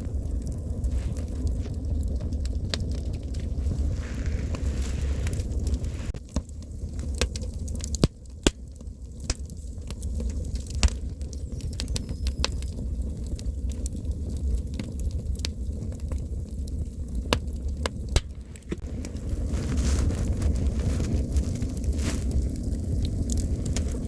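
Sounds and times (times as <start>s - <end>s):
low rumble: 0.0s - 6.8s, 15.9s - 24.0s
campfire crackling: 0.0s - 24.0s
wood pops: 17.3s - 18.9s.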